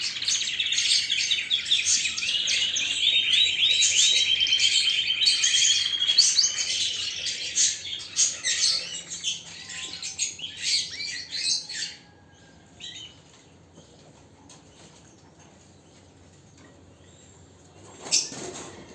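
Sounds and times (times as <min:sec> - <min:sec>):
canary singing: 0:00.0 - 0:13.2.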